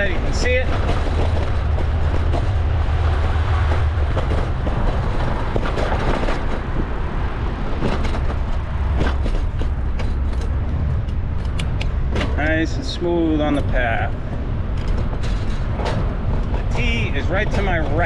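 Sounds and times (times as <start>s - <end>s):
wind rumble on microphone: 0.0s - 18.0s
bike clicks and knocks: 7.8s - 12.5s, 14.7s - 18.0s.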